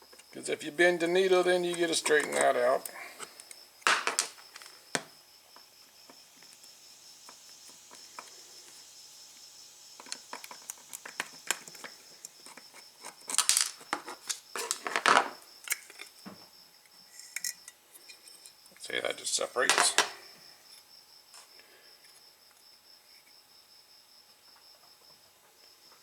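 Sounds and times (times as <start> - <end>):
screwdriver clicks and metal clinks: 1.8 - 4.3, 13.0 - 14.9, 17.2 - 17.7
metal parts clattering: 3.8 - 4.6, 13.3 - 16.0, 19.6 - 20.2.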